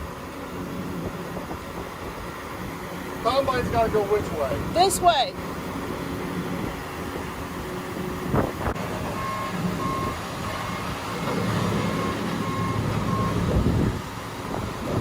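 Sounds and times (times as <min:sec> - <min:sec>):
diesel engine running: 0:00.0 - 0:15.0
reversing alarm beeping: 0:09.1 - 0:10.9, 0:11.5 - 0:13.6.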